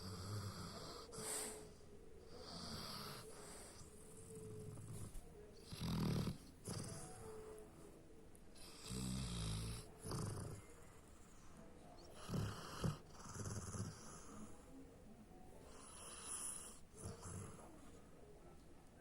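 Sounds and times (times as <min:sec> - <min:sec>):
dog snoring: 0:00.0 - 0:01.6, 0:02.3 - 0:07.6, 0:08.6 - 0:11.4, 0:12.1 - 0:14.6, 0:15.7 - 0:18.0
dog snorting: 0:02.4 - 0:07.2, 0:08.6 - 0:11.0, 0:12.2 - 0:14.5, 0:15.7 - 0:17.7.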